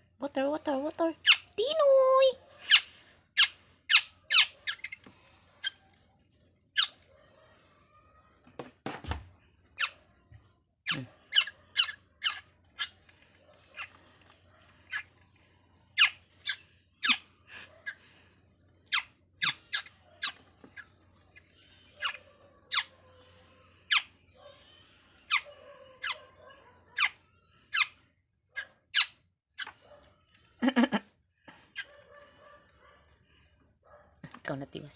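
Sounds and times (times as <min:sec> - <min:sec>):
bird chirping: 0:01.2 - 0:01.7, 0:02.6 - 0:05.8, 0:06.7 - 0:07.0, 0:10.9 - 0:13.0, 0:13.6 - 0:14.0, 0:14.8 - 0:15.1, 0:16.0 - 0:18.0, 0:18.8 - 0:20.9, 0:28.6 - 0:29.8.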